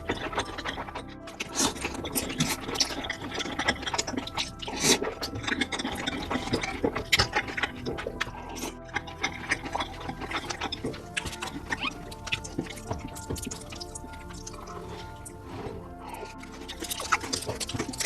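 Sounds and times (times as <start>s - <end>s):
chewing crispy fried chicken: 0.0s - 18.0s.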